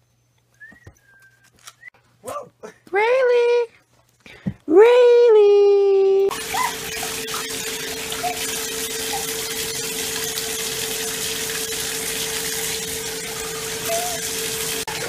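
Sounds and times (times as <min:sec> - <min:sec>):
water running from a tap: 0:06.3 - 0:15.0.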